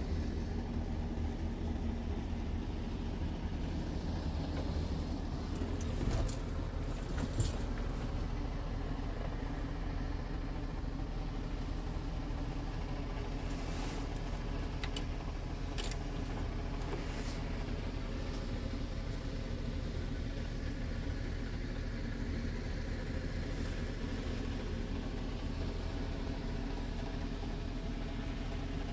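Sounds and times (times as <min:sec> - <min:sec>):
diesel truck engine idling: 0:00.0 - 0:28.9.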